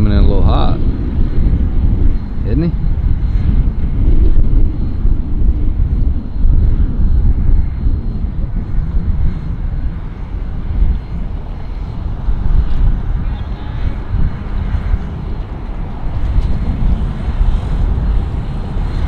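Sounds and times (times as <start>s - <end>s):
boat engine rumbling: 0.0s - 19.0s.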